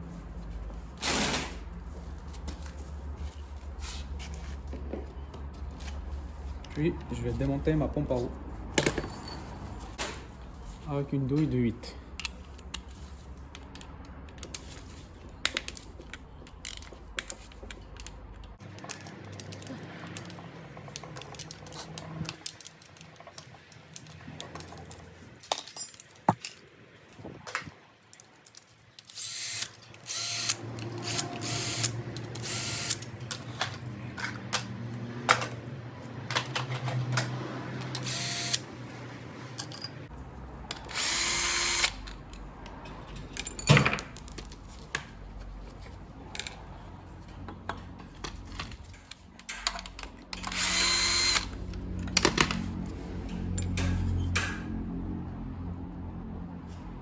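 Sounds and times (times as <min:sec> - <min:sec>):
tools clinking on metal: 0:16.6 - 0:26.7, 0:39.6 - 0:40.1
power drill bursts: 0:29.2 - 0:33.0, 0:38.0 - 0:38.6, 0:40.9 - 0:42.0, 0:50.4 - 0:51.5.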